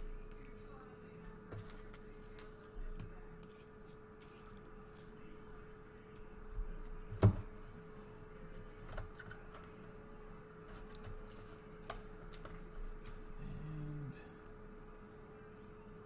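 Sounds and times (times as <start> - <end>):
faint steady hum: 0.0 - 16.0
trading cards being handled: 1.5 - 5.4.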